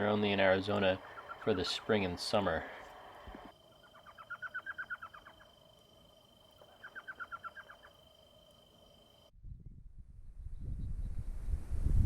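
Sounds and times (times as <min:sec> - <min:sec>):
owl yelping calls: 0:00.8 - 0:05.6, 0:06.6 - 0:08.1.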